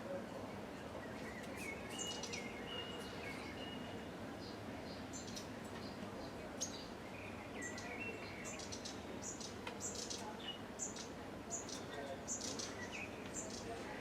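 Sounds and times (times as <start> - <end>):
outdoor background hiss: 0.0 - 14.0
songbirds chirping: 0.0 - 14.0.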